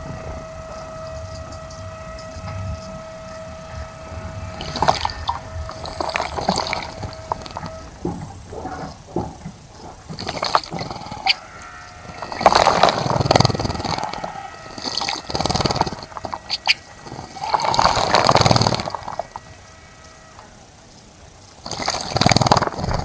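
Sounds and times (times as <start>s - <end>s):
high bird chirp: 10.8s - 20.4s.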